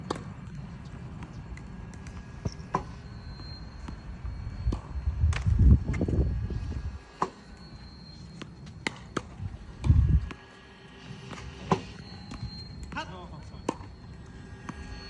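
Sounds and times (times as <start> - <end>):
tennis ball machine launching balls: 0.0 - 15.0
low rumble: 9.4 - 10.4.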